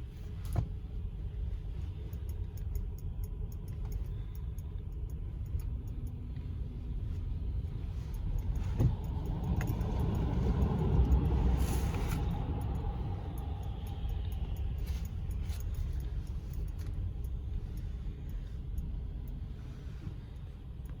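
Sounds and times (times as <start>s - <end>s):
car wash rumble: 5.3s - 21.0s.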